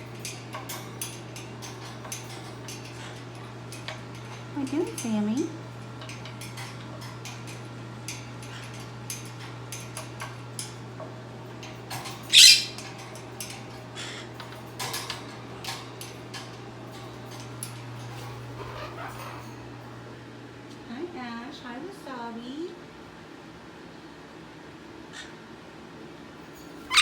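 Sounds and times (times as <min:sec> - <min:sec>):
parrot squawking: 0:12.3 - 0:12.8, 0:18.5 - 0:19.4.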